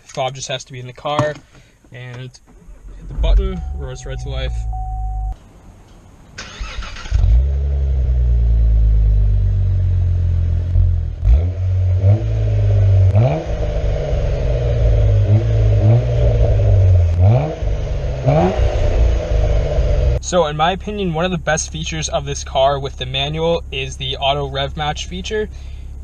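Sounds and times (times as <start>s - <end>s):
car engine starting and idling: 1.9s - 26.0s
car engine revving: 6.4s - 23.4s.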